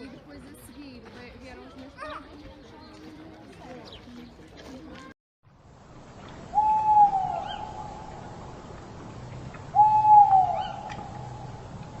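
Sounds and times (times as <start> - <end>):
bird hooting call: 6.5 - 8.2, 9.7 - 11.7.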